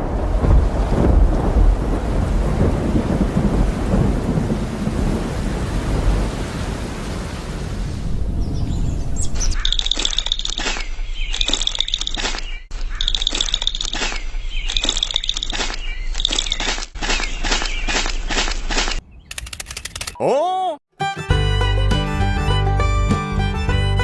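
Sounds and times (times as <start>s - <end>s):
steady rain: 0.0s - 8.4s
rolling thunder: 0.0s - 9.6s
birds chirping: 8.4s - 20.0s.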